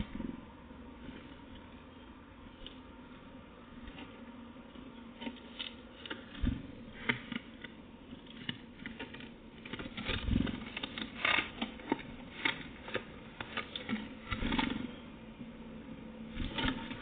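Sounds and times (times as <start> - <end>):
bird pecking and scratching: 5.1 - 15.0.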